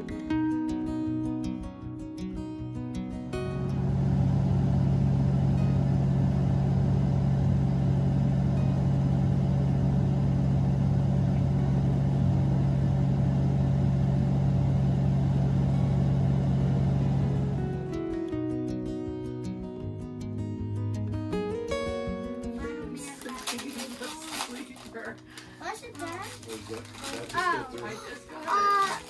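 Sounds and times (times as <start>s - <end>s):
vehicle engine droning: 3.4s - 18.6s.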